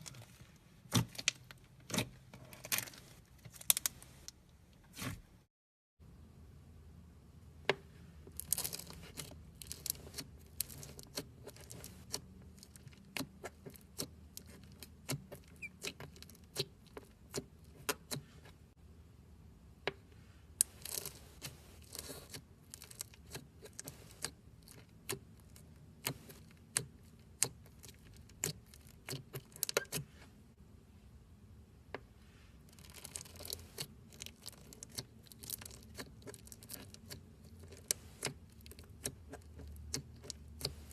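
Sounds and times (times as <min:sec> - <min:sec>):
slime crackling and popping: 0:32.7 - 0:40.9.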